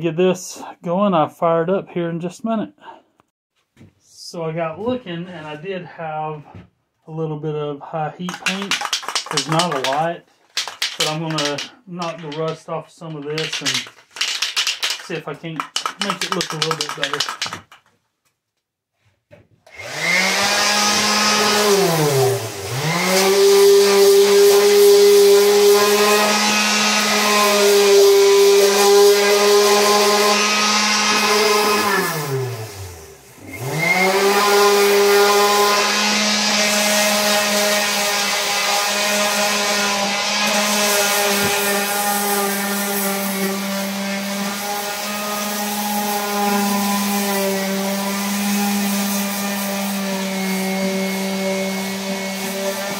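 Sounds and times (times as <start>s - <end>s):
angle grinder sanding metal: 8.3s - 17.6s, 19.8s - 52.9s.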